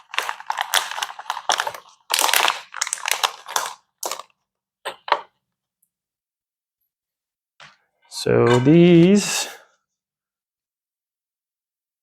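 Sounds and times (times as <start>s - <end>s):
plastic packaging crinkling: 0.0s - 4.5s.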